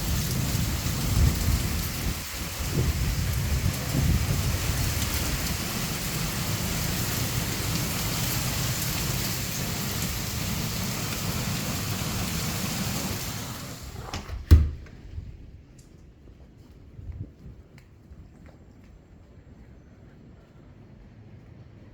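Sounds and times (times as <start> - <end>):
heavy rain pouring: 0.0 - 14.7.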